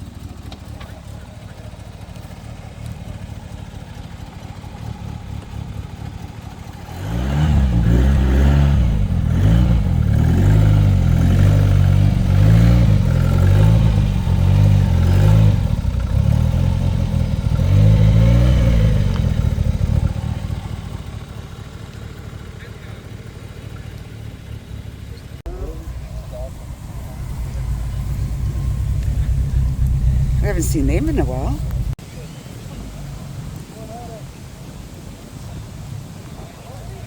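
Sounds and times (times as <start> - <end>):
vehicle engine revving: 0.0 - 33.6.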